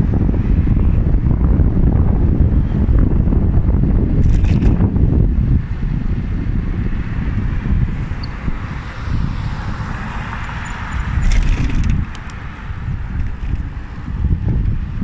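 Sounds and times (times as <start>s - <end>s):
road and tyre hiss: 0.0s - 4.2s, 4.8s - 15.0s
wind buffeting microphone: 0.0s - 15.0s
sharp clicks: 11.2s - 12.4s.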